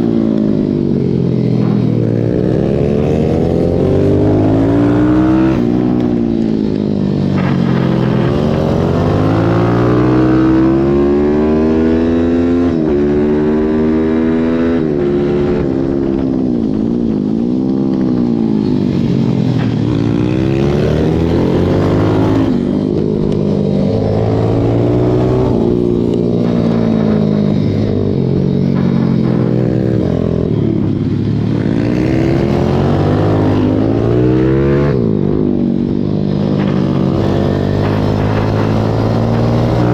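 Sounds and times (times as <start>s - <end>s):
pit bike engine revving: 23.9s - 39.9s.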